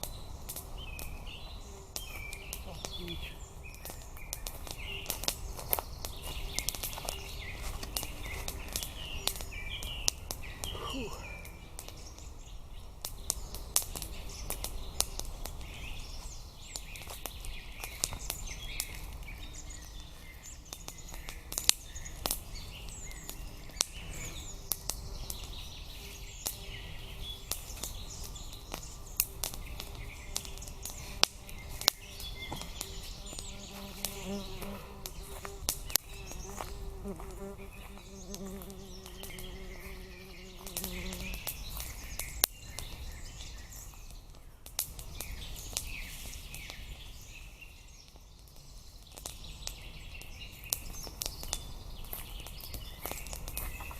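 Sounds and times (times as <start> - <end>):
small birds chirping: 0.0 - 53.9
sharp clicks and snaps: 13.0 - 15.7, 20.7 - 24.0
fly buzzing: 29.2 - 41.5.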